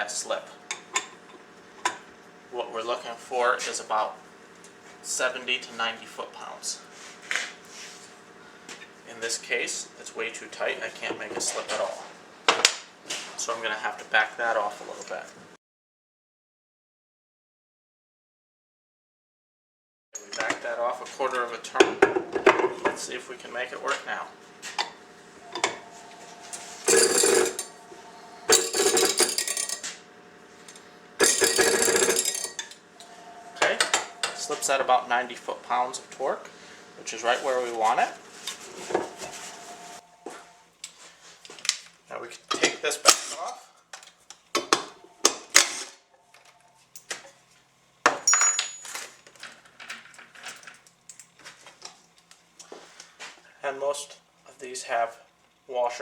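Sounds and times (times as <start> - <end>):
metallic clattering and ringing: 25.5 - 30.0, 30.7 - 34.6, 48.3 - 49.0
metal tools clinking on workbench: 26.5 - 27.8, 28.5 - 30.0, 30.7 - 32.8, 48.2 - 49.2.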